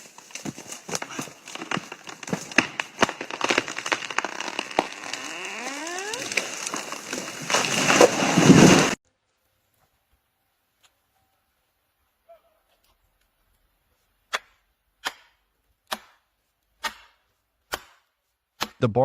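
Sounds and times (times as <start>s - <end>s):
rush of falling tree: 0.0s - 9.0s
tree creaking: 0.0s - 9.0s
wood cracking and splintering: 0.0s - 9.0s.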